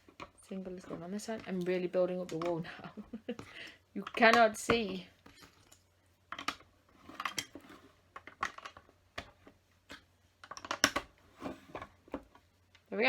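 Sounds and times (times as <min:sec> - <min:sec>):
plastic bricks clicking: 0:04.0 - 0:11.1.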